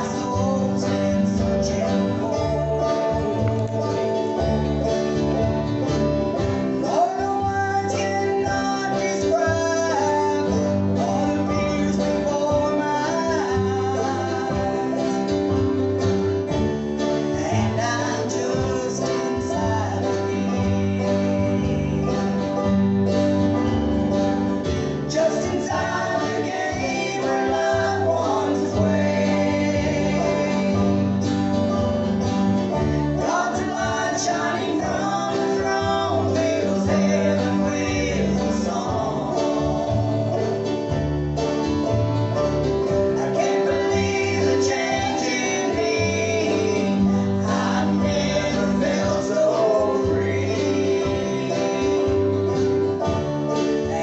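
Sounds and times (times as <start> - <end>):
acoustic guitar: 0.0 - 54.0
group singing: 0.0 - 54.0.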